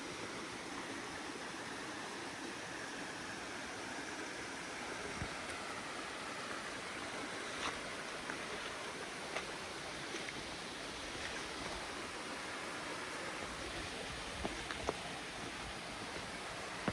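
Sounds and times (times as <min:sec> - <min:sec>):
mountain stream rushing: 0:00.0 - 0:16.9.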